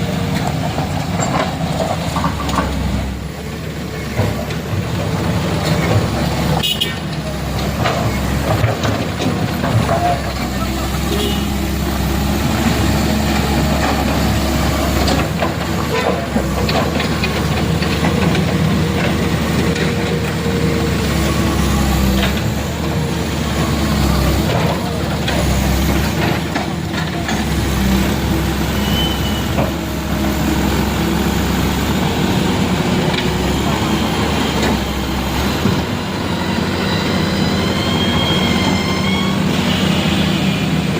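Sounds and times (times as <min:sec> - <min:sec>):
knocks and clatter: 0:04.0 - 0:10.4, 0:13.4 - 0:20.4.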